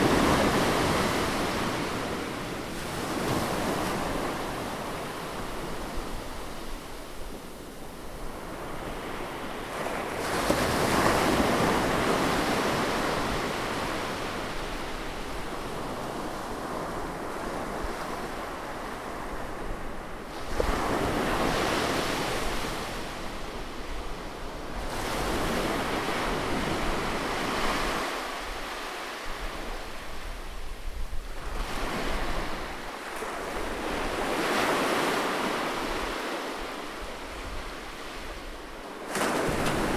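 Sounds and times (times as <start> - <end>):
sea waves breaking on shore: 31.5 - 39.9.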